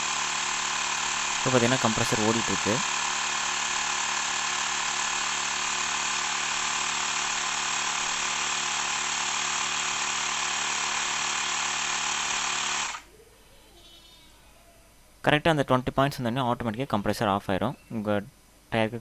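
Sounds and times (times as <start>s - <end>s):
air compressor humming and hissing: 0.0s - 13.1s.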